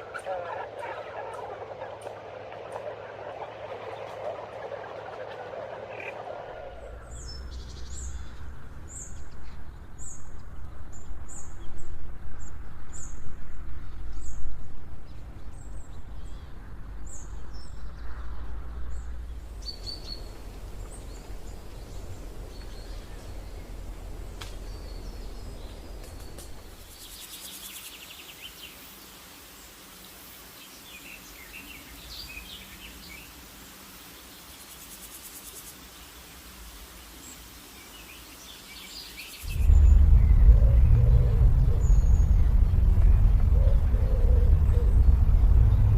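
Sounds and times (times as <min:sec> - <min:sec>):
low rumble: 0:00.6 - 0:11.4, 0:17.0 - 0:27.0, 0:39.4 - 0:45.9
bird chirping: 0:18.9 - 0:28.6, 0:37.9 - 0:45.9
insect-like buzz: 0:19.5 - 0:45.9.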